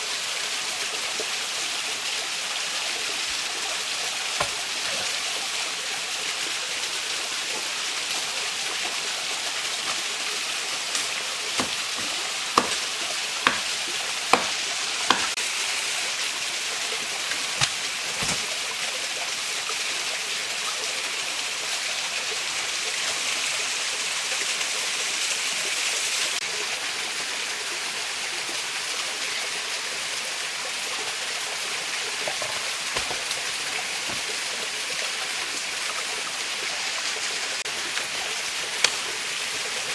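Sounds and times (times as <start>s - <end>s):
stream rushing: 1.1s - 19.2s, 31.6s - 39.9s.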